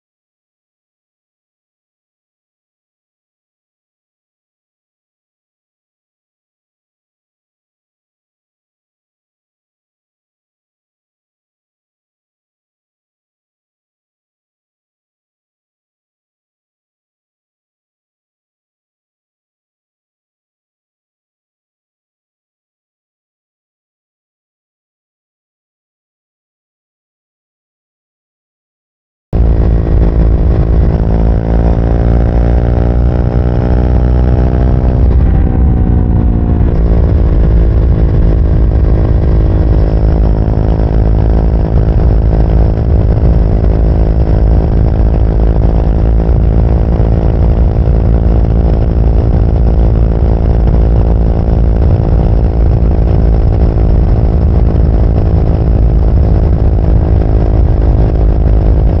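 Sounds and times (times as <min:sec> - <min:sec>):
motorcycle engine revving: 0:29.4 - 0:59.0.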